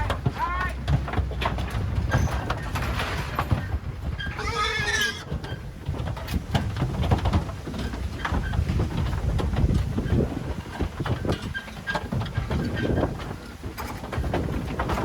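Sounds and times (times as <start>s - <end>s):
knocks and clatter: 0.0s - 15.0s
pig squealing: 4.3s - 5.2s.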